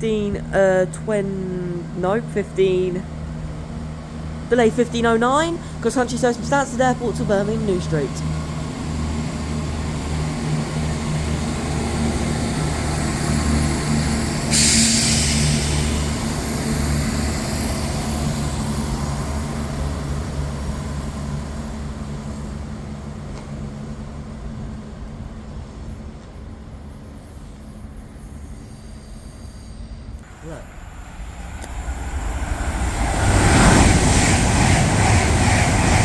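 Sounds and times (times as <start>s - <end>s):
diesel train engines droning: 0.0s - 36.0s
loud burst of hissing: 14.1s - 18.4s.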